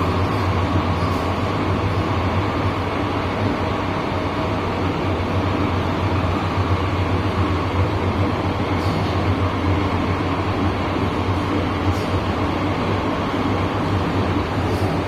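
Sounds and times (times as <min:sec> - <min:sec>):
train interior running hum: 0:00.0 - 0:15.0
wheel-on-rail rumble and hiss: 0:00.0 - 0:15.0.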